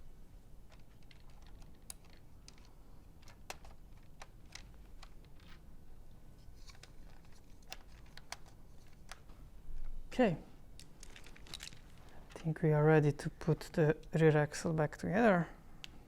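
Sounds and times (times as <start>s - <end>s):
plastic parts clicking: 0.7s - 5.6s, 6.6s - 9.3s, 10.8s - 12.5s.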